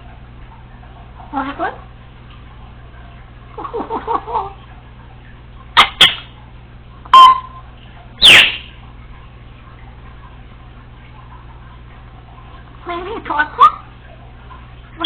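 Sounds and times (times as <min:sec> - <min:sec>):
parrot squawk and whistle: 0:05.8 - 0:06.3, 0:08.2 - 0:08.8.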